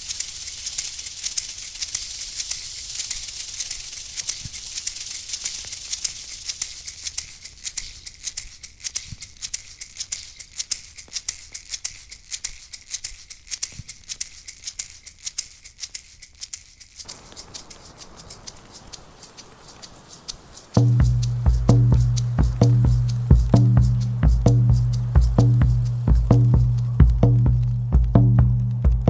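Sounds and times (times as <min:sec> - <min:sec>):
hand rattle shaken: 0:00.0 - 0:28.9.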